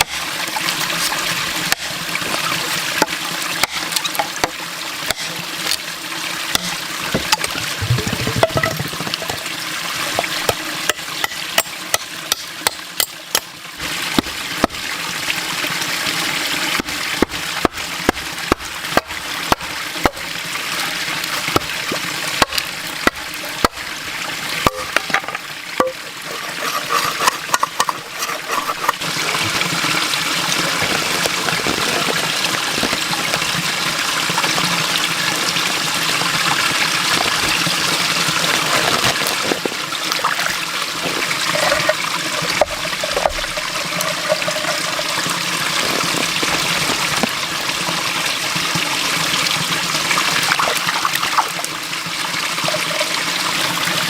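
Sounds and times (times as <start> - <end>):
water running and splashing: 0.0 - 54.0
sharp knocks and clicks: 6.5 - 9.5.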